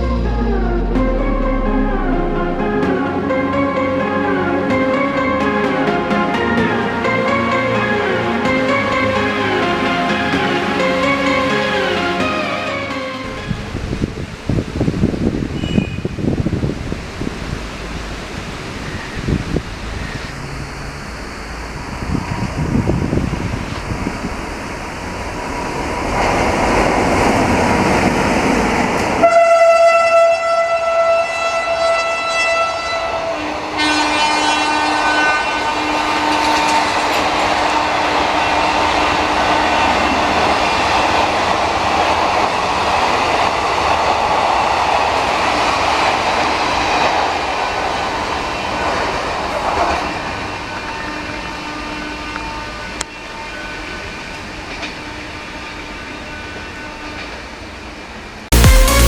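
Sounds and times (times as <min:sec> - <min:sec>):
train horn blasts: 0:00.0 - 0:14.4, 0:29.2 - 0:40.7, 0:50.4 - 0:57.6.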